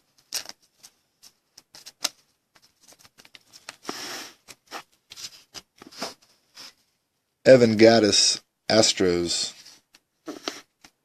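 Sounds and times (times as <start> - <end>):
cards clicking and tapping: 0.2 - 6.0
card sliding into plastic sleeve: 1.7 - 6.2.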